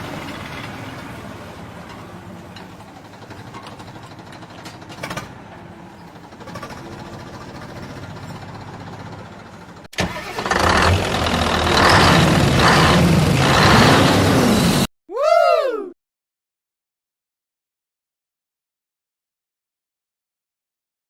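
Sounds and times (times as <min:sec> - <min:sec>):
engine running low: 0:00.0 - 0:14.9
loud pulsing engine: 0:10.5 - 0:14.9.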